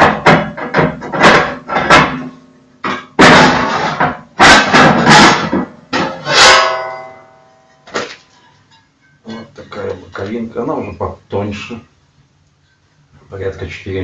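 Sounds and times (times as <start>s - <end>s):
metal clanks and knocks: 0.0s - 9.9s
iron ringing: 4.4s - 9.5s
grinding metal scrape: 6.0s - 7.2s.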